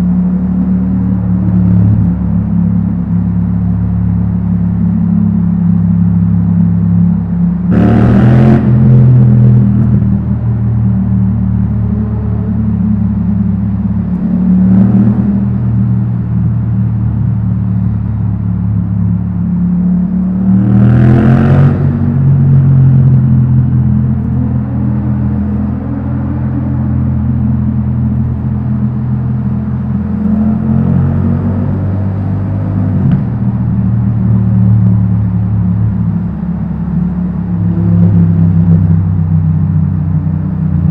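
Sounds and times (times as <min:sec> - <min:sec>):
motorcycle engine revving: 0:07.7 - 0:10.0.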